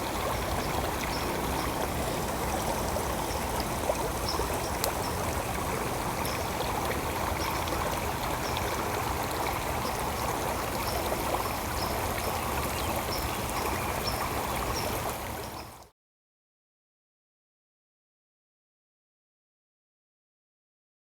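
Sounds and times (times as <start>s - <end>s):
stream of water running: 0.0s - 15.9s.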